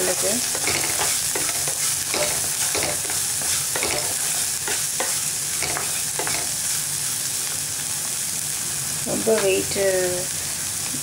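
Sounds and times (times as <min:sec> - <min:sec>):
food sizzling in oil: 0:00.0 - 0:11.0
wooden spatula scraping a pan: 0:00.4 - 0:06.5.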